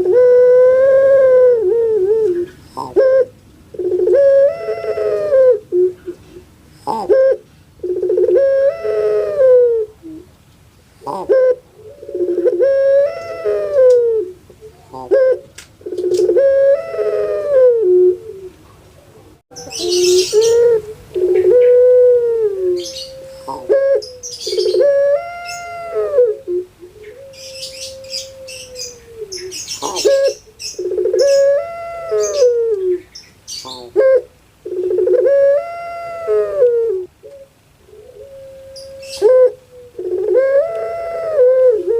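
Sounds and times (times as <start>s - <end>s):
dove cooing: 0.0s - 10.3s, 11.0s - 41.9s
small birds chirping: 19.5s - 21.8s, 22.8s - 25.8s, 26.8s - 34.0s.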